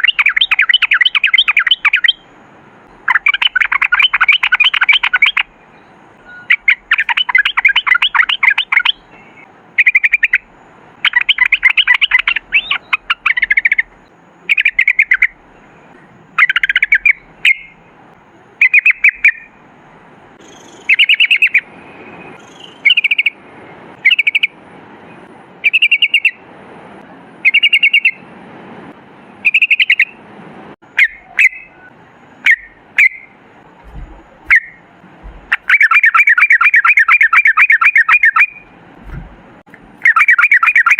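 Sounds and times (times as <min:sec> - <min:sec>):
bird singing bubbling phrases: 0:00.0 - 0:02.3, 0:02.9 - 0:17.9, 0:18.5 - 0:19.5, 0:20.4 - 0:23.4, 0:24.0 - 0:24.6, 0:25.6 - 0:26.4, 0:27.4 - 0:28.2, 0:29.4 - 0:30.2, 0:30.9 - 0:38.7, 0:40.0 - 0:40.9.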